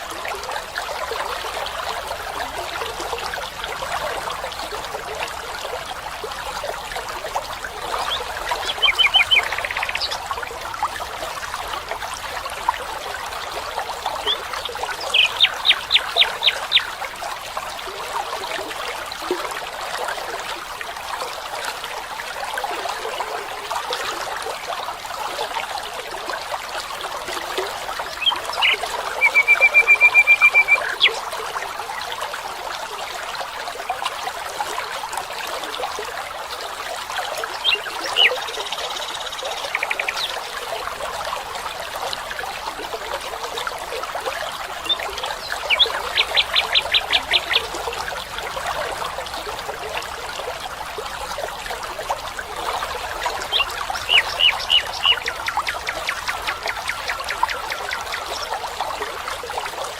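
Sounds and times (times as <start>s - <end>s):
stream trickling: 0.0s - 59.9s
bird calling in trills: 8.0s - 10.2s, 28.2s - 31.2s, 53.5s - 58.2s.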